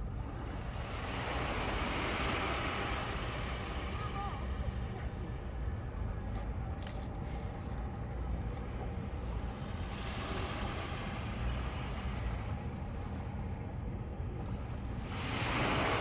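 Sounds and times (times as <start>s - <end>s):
sea waves washing in: 0.0s - 6.1s, 6.8s - 16.0s.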